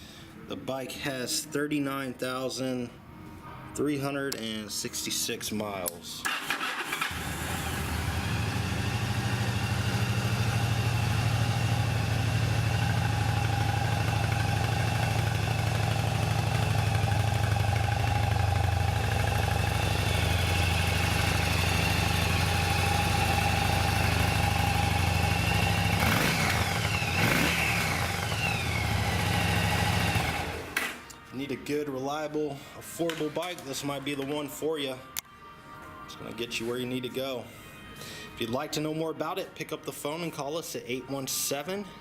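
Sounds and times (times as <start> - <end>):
motorcycle engine idling: 7.1 - 30.8.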